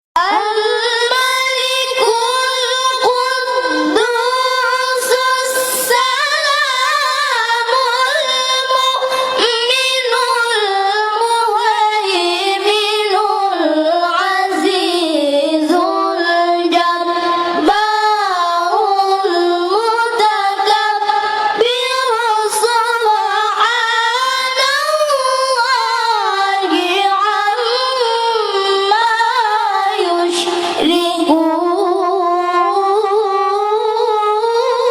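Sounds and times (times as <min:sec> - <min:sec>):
young high voice chanting: 0:00.2 - 0:34.9.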